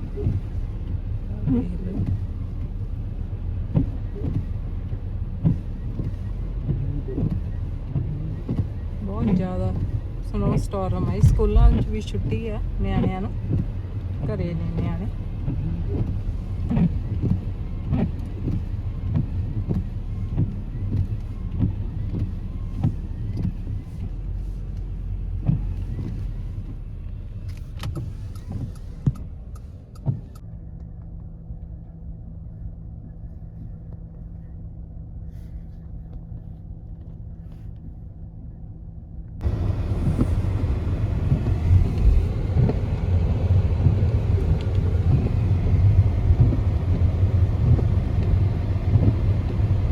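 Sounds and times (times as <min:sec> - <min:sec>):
car engine rumble: 0:00.0 - 0:49.9.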